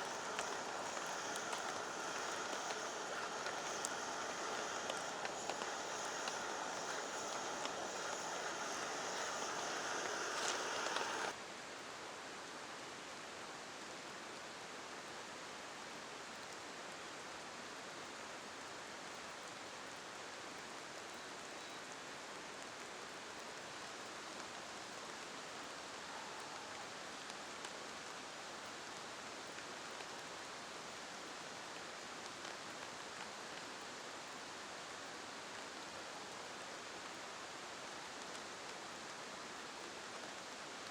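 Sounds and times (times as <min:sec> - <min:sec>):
bright rushing noise: 0:00.0 - 0:11.4
rain hissing: 0:00.0 - 0:11.4, 0:22.4 - 0:40.9.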